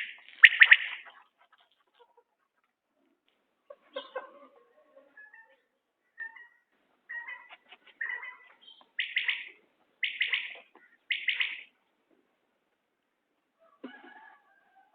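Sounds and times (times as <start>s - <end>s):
quail calling: 0.0s - 2.3s, 3.9s - 11.7s.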